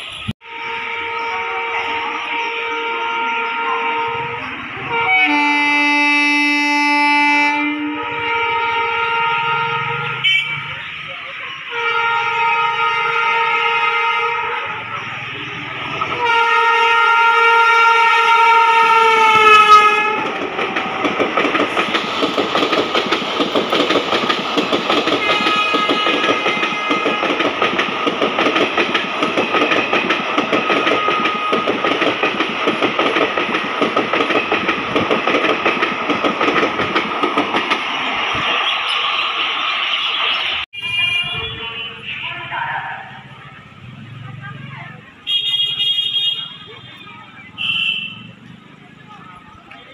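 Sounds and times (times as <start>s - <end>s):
train horn: 0.0s - 10.8s, 11.7s - 21.0s, 24.9s - 28.0s, 29.3s - 32.1s, 40.7s - 42.4s, 47.6s - 48.3s
train wheels clattering: 17.5s - 39.0s.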